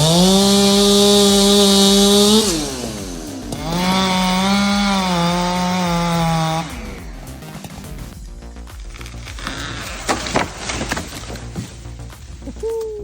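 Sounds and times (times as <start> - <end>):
chainsaw at full throttle: 0.0 - 8.1, 9.4 - 11.3.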